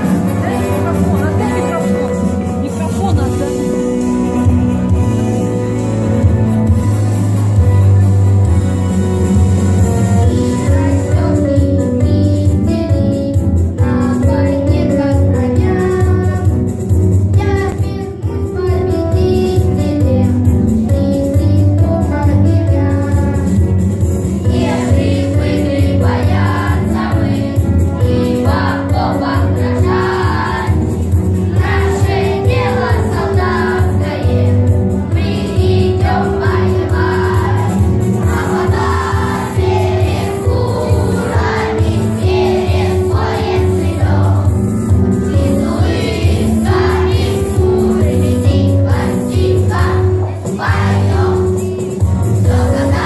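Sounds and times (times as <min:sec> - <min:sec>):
musical accompaniment: 0:00.0 - 0:53.0
children's choir singing: 0:24.4 - 0:53.0.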